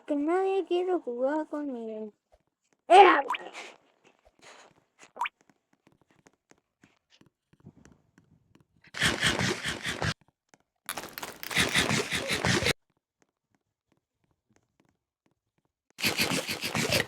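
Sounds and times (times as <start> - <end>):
chip bag crinkling: 10.9 - 11.9.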